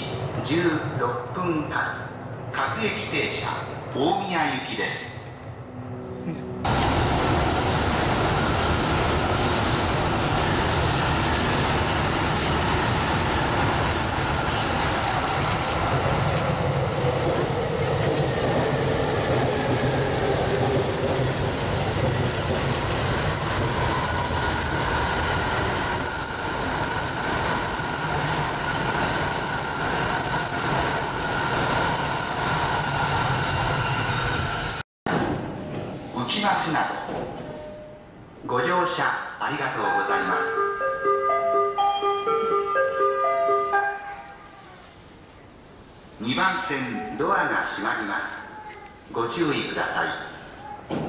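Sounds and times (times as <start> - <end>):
train wheels rumbling on rail: 6.6 - 35.9.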